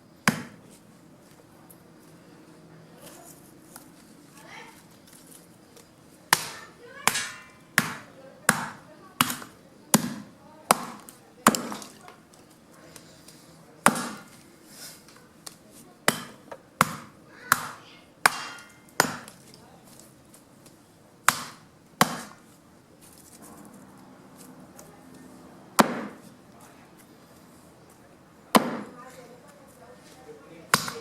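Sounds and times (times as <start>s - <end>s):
wood chopping strikes: 0.2s - 0.6s, 6.3s - 12.0s, 13.8s - 14.4s, 15.4s - 19.4s, 21.3s - 22.4s, 25.8s - 26.3s, 28.5s - 29.0s, 30.7s - 31.0s.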